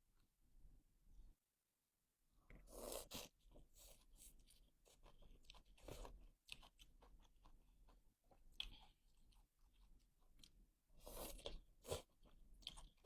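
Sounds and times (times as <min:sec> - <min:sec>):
chewing crunchy food: 0:02.5 - 0:13.0.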